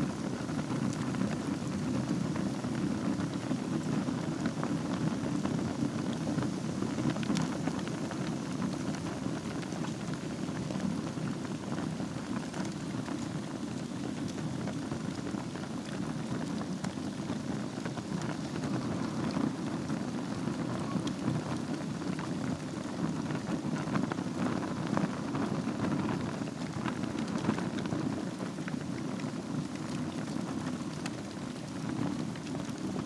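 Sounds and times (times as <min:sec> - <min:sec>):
fire crackles and pops: 0:00.0 - 0:33.0
fire flame rushing: 0:00.0 - 0:33.0.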